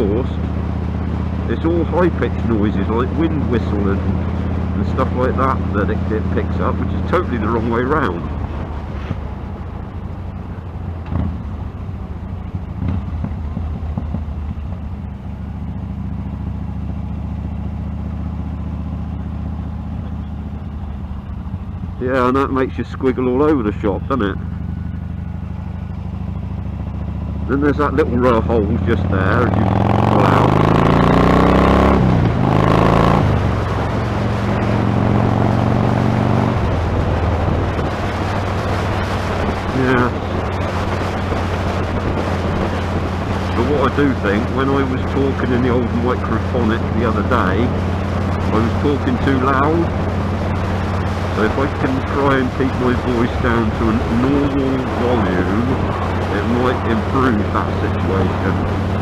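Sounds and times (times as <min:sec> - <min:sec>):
motorcycle engine running: 0:00.0 - 0:59.0
wind noise: 0:31.7 - 0:59.0.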